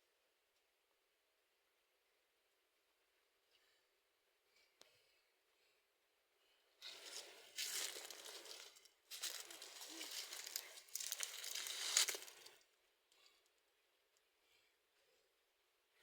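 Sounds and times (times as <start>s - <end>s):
rustling crinkling noise: 6.8s - 12.7s.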